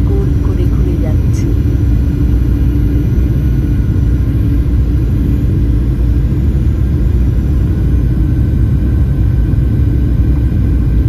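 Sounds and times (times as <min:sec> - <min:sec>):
faint steady hums: 0:00.0 - 0:07.2
airliner engine rumble: 0:00.0 - 0:11.0.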